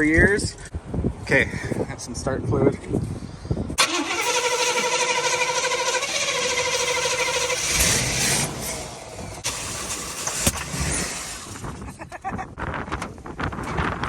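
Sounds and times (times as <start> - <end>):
starter motor cranking: 3.8 - 11.8
car engine sputtering with pops: 3.8 - 14.0.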